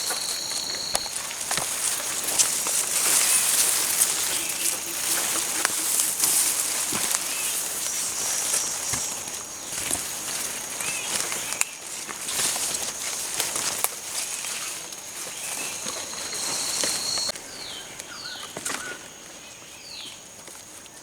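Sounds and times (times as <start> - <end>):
high-pitched insect drone: 0.0 - 10.8.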